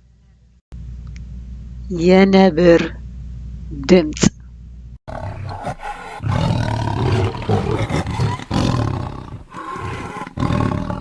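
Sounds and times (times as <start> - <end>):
leopard roaring: 5.1 - 11.0.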